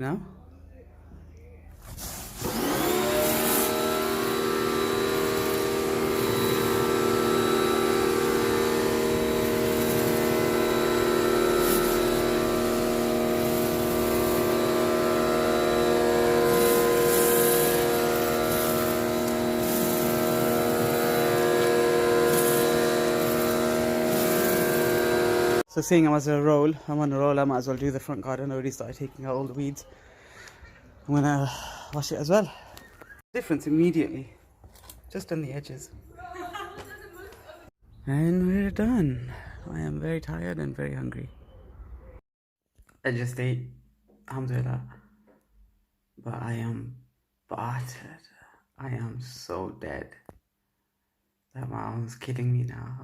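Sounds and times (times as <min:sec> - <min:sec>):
water jet hissing: 0:02.2 - 0:25.6
pressure washer motor: 0:02.2 - 0:25.7.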